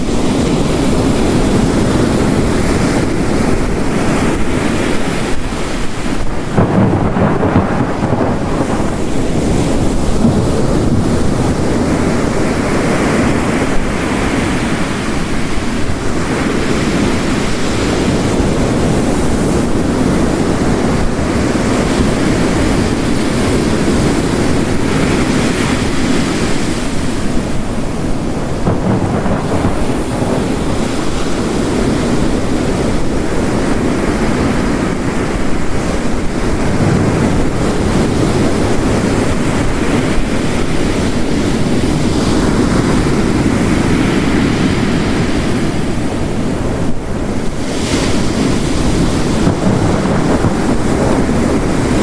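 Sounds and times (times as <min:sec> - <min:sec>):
heavy rain: 0:00.0 - 0:52.0
ocean waves crashing on rocks: 0:00.0 - 0:52.0
distant thunder rumbling: 0:06.2 - 0:14.9, 0:27.3 - 0:33.6, 0:34.2 - 0:43.5, 0:48.3 - 0:52.0.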